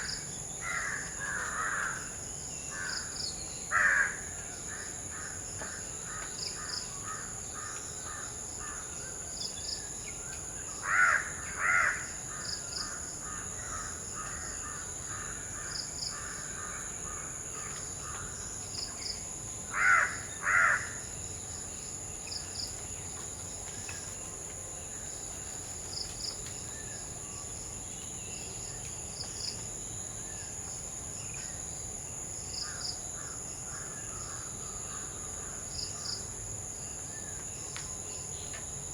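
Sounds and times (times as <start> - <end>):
crows cawing: 0.6 - 2.0, 3.7 - 4.2, 10.8 - 12.1, 19.7 - 21.0.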